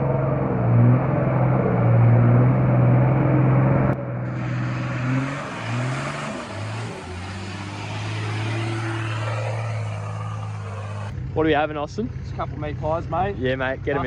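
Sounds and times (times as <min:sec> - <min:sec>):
engine running and revving: 0:00.0 - 0:14.0.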